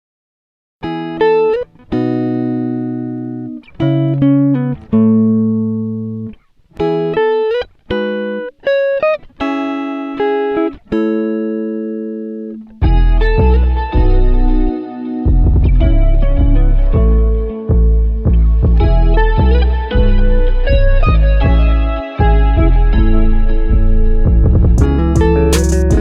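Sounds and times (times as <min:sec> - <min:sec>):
guitar playing slow chords: 0:00.8 - 0:26.0.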